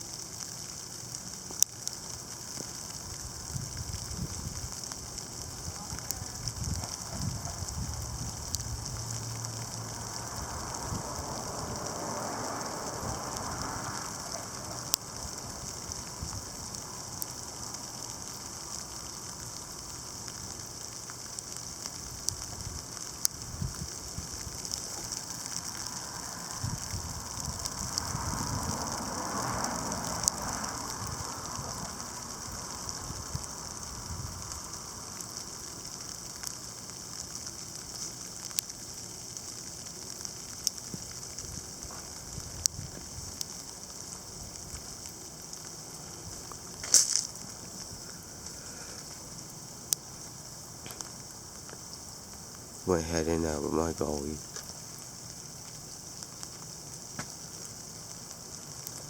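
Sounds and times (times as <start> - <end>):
ice pellets ticking: 0.0 - 59.0
sleet and snow hissing: 0.0 - 59.0
rushing noise: 5.7 - 15.4, 25.0 - 35.2.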